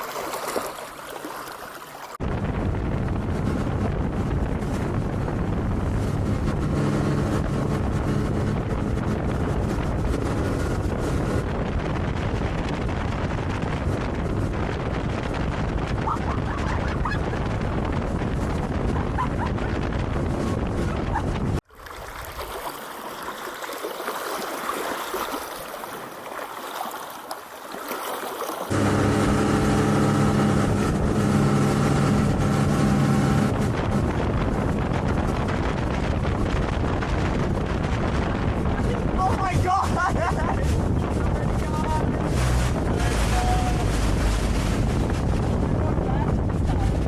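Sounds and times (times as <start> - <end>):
small splashes: 0.0 - 2.2, 21.6 - 28.7
water trickling and lapping: 0.0 - 2.2, 20.8 - 28.8
wind buffeting microphone: 2.1 - 27.4, 28.6 - 47.0
motorboat engine running: 2.2 - 47.0.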